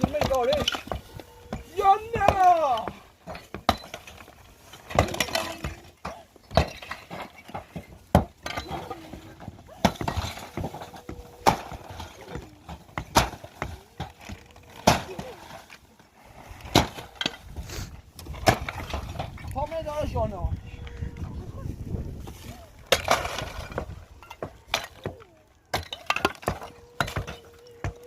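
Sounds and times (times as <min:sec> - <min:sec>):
hard objects knocking and clinking: 0:22.9 - 0:28.0.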